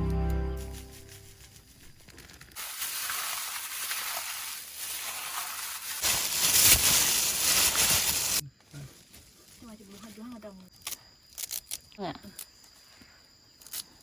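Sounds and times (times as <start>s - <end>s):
background music: 0.0s - 1.3s
steady hiss: 0.7s - 9.0s.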